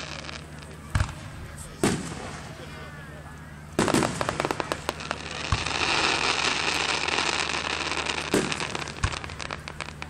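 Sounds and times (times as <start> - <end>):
crackle of bursting fireworks: 0.0 - 10.0
sharp firework bang: 0.9 - 2.5, 3.8 - 4.8, 5.4 - 6.6, 8.3 - 9.4.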